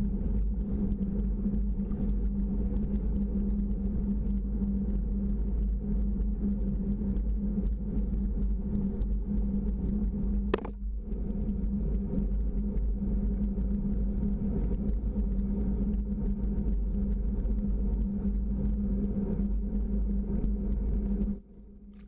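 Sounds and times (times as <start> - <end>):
low rumbling drone: 10.0 - 16.8.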